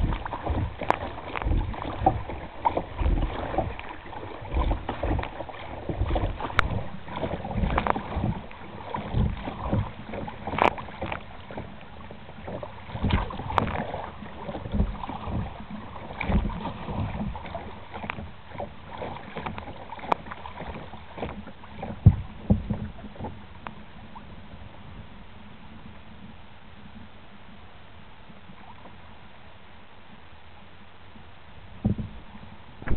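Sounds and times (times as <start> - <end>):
wind buffeting microphone: 0.0 - 17.7, 31.8 - 32.9
paddle splashing in water: 0.0 - 25.0, 31.7 - 32.9.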